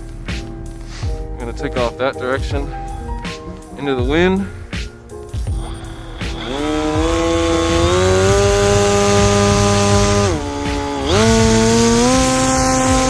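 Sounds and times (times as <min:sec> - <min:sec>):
electric motor and propeller whine: 0:05.5 - 0:13.0.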